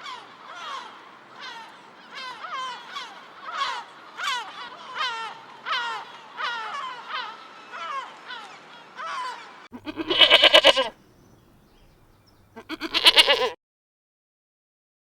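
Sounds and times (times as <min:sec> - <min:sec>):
short falling animal calls: 0:09.0 - 0:11.0, 0:12.6 - 0:13.6
goat bleating: 0:09.8 - 0:11.0, 0:12.5 - 0:13.6.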